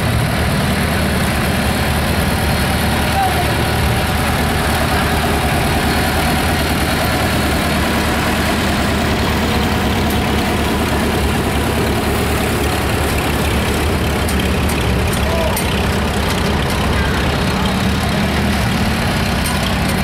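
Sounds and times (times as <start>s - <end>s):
tractor engines running: 0.0s - 20.0s.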